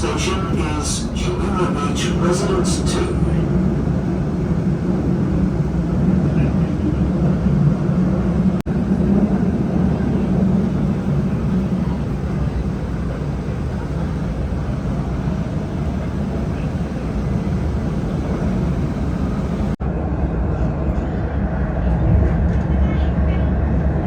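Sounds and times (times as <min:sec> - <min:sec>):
vehicle rumble and hiss: 0:00.0 - 0:19.8.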